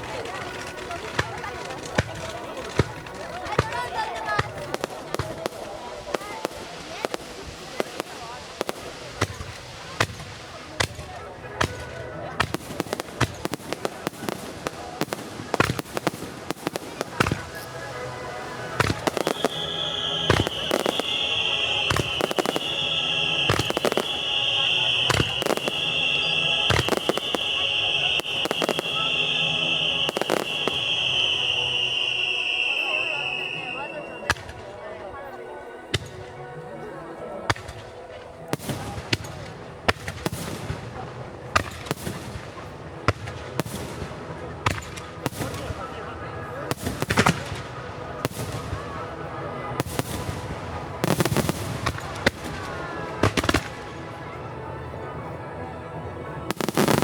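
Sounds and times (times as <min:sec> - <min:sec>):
fireworks bangs and crackles: 0:00.0 - 0:34.8, 0:35.8 - 0:36.4, 0:37.4 - 0:55.5, 0:56.3 - 0:57.0
faint background music: 0:00.0 - 0:57.0.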